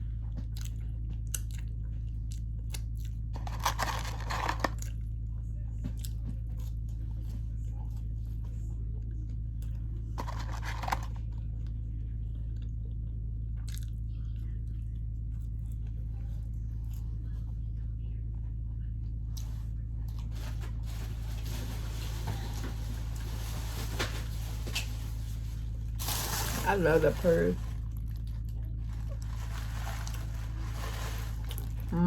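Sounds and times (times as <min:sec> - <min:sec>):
steady low hum: 0:00.0 - 0:32.0
person chewing food: 0:00.2 - 0:05.0, 0:05.8 - 0:08.2, 0:13.6 - 0:14.6, 0:27.6 - 0:31.9
food crunches: 0:00.4 - 0:05.0, 0:09.6 - 0:11.5, 0:13.6 - 0:14.0, 0:27.6 - 0:32.0.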